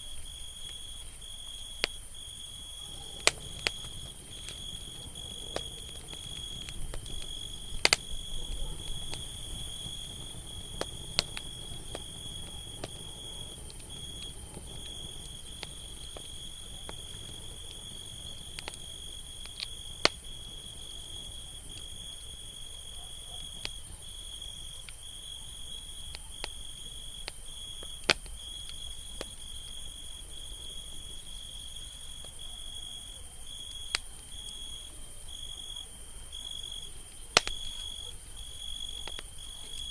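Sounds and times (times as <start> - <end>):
cricket trilling: 0.1 - 39.9
campfire crackling and popping: 0.5 - 39.9.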